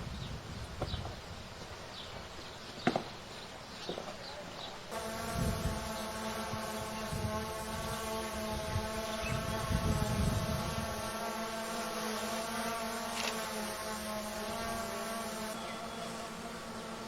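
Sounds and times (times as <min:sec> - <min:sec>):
wind buffeting microphone: 0:00.0 - 0:01.5, 0:05.2 - 0:11.1.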